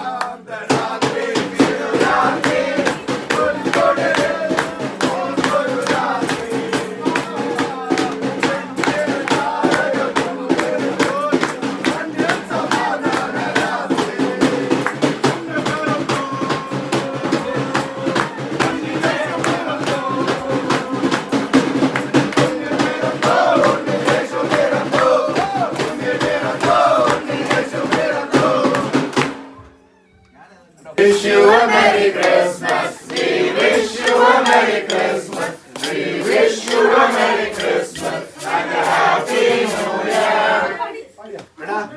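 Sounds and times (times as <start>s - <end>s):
voices singing a carol: 0.0s - 29.2s, 31.0s - 41.0s
steady percussive beat: 0.6s - 29.5s, 31.0s - 40.7s
instrumental accompaniment: 31.0s - 40.4s.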